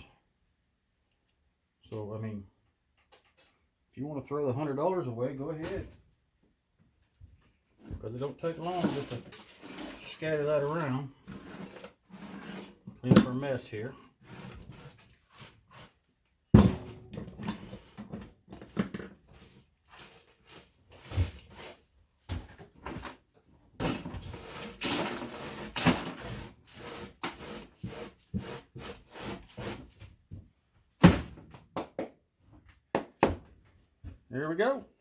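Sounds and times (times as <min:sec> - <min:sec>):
debris clattering and scraping: 0:08.4 - 0:15.5, 0:23.8 - 0:27.5.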